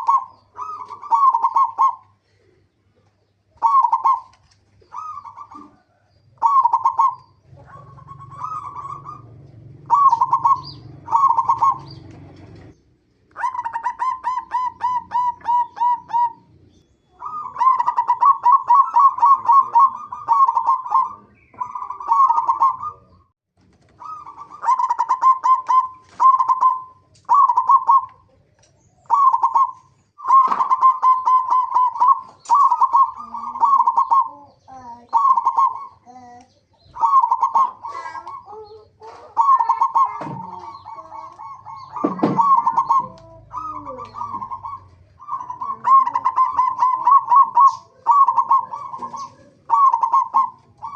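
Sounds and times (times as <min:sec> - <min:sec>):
dove cooing in pulsed notes: 0:00.0 - 0:23.3, 0:23.9 - 0:50.9.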